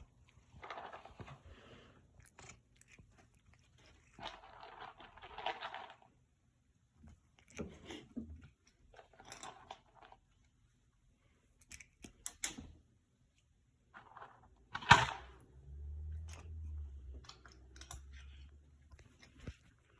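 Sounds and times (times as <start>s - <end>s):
cat crunching dry treats: 0.0s - 6.3s, 11.5s - 12.4s, 14.0s - 19.9s.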